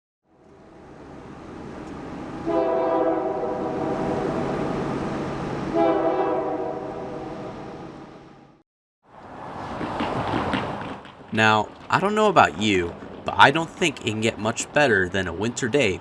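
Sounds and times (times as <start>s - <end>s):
train rumble: 0.4s - 8.6s
train horn: 2.4s - 4.6s, 5.7s - 7.8s.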